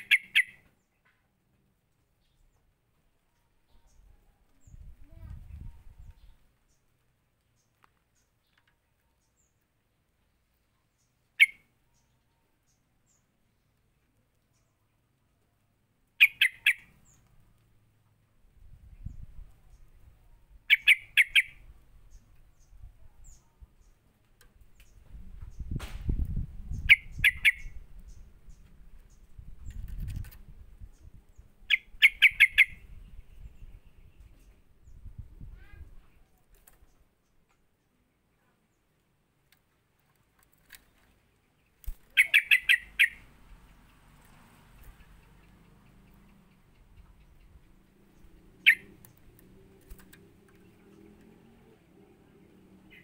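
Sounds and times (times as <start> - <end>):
bird calling harsh notes: 0.0 - 0.7, 16.2 - 17.0, 42.1 - 43.3, 48.6 - 49.0
bird sharp chirps: 0.0 - 1.0, 11.3 - 12.2, 16.2 - 17.2, 20.7 - 23.9, 26.6 - 29.2, 30.9 - 35.0, 41.8 - 44.0, 44.8 - 50.0.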